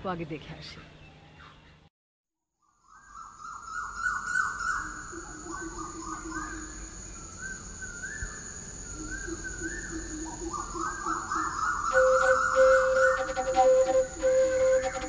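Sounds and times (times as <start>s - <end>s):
birds chirping: 11.5s - 15.0s
thin high-pitched tone: 11.9s - 15.0s.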